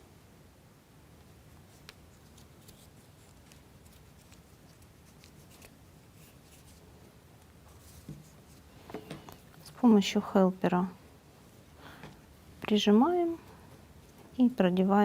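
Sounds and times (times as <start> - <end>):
faint clicks and rustles: 1.2 - 9.8.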